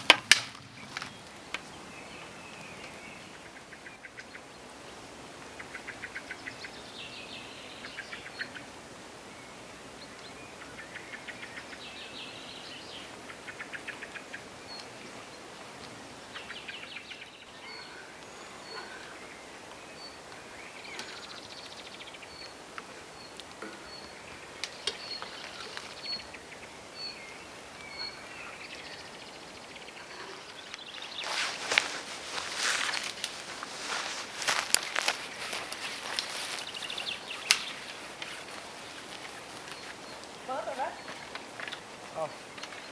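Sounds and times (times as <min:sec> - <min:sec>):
songbirds trilling: 0:00.0 - 0:42.9
footsteps in forest litter: 0:30.3 - 0:42.9.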